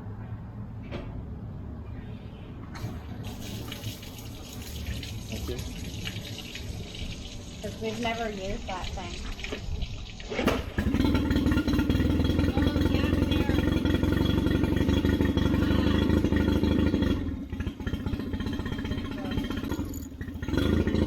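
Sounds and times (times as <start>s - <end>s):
outboard motor running: 10.5s - 21.0s.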